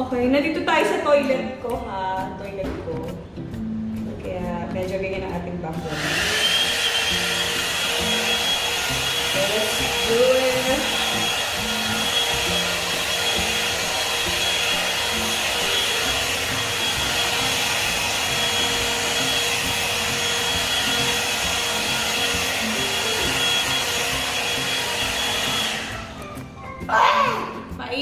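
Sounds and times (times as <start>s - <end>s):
hair dryer brush blowing: 5.8s - 26.4s.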